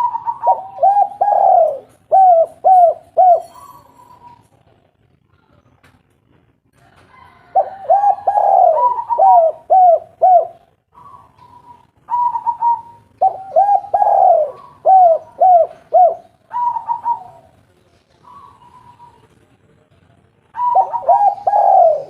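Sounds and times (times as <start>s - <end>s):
dove cooing: 0.0s - 4.6s, 7.2s - 17.6s, 18.2s - 19.3s, 20.5s - 22.0s.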